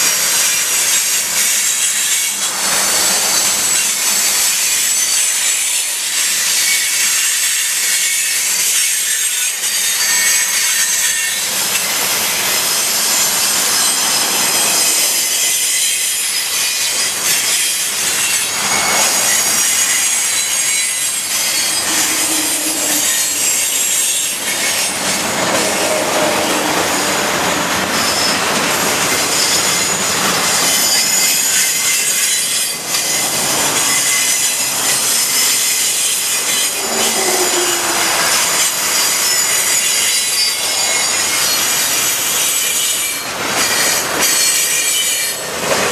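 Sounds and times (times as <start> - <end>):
wheel squeals: 6.4 - 45.9
freight train rolling past: 9.6 - 45.9.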